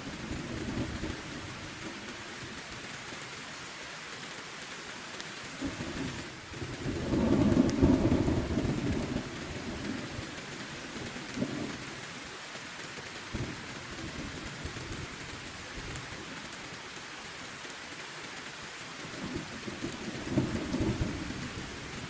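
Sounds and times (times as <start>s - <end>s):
heavy rain falling: 0.0s - 22.0s
thunder rumbling: 0.1s - 2.1s, 5.6s - 11.8s, 19.2s - 22.0s.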